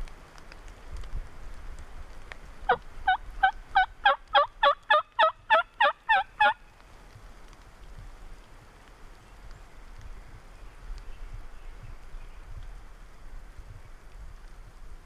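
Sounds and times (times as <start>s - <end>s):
turkey yelps: 2.7s - 6.6s.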